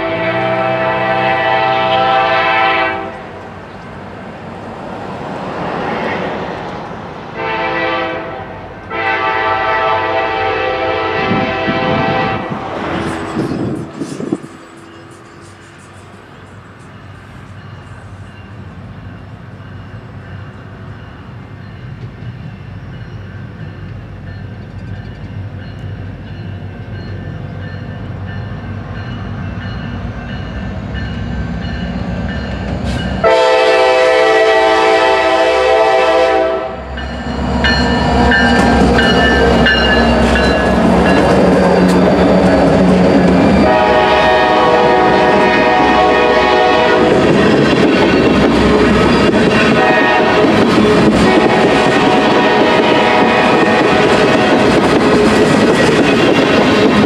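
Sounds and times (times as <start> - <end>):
train horn blast: 0.0 - 3.4, 7.4 - 14.3, 33.2 - 37.1, 42.8 - 55.3
locomotive engine rumble: 10.6 - 57.0.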